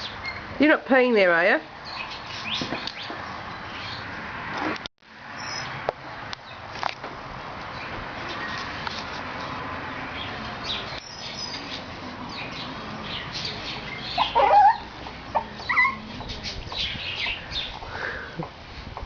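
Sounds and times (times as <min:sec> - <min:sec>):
faint birds chirping: 0:10.0 - 0:18.5
puppy whimpering and yelping: 0:14.1 - 0:16.3.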